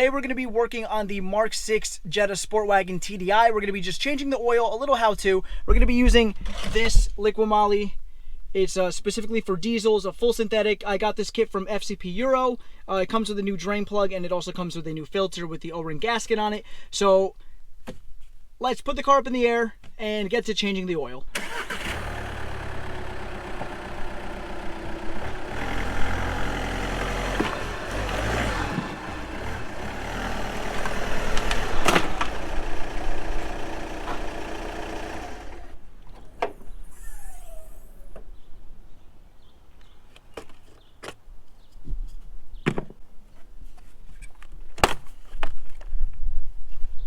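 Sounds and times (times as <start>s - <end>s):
diesel engine rumbling: 21.4s - 38.4s.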